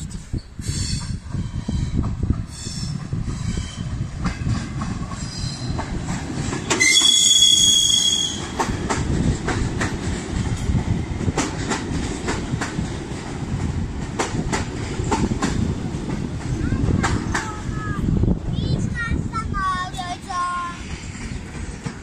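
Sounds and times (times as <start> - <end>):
train rumble: 0.0 - 22.0
wheels clicking over rail joints: 1.0 - 17.7, 19.8 - 22.0
high wheel squeal: 6.8 - 8.6.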